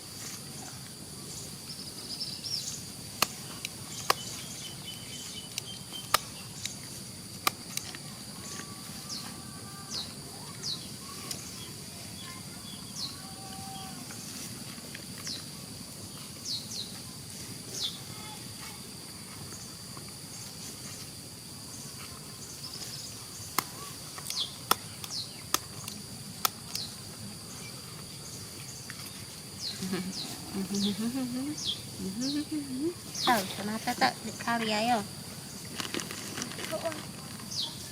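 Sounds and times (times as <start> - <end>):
high-pitched insect drone: 26.8 - 35.6
bird chirps: 29.6 - 33.5.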